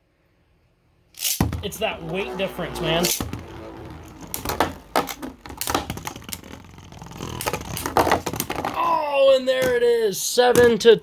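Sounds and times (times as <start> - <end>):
spinning tops clashing: 1.2 - 6.5.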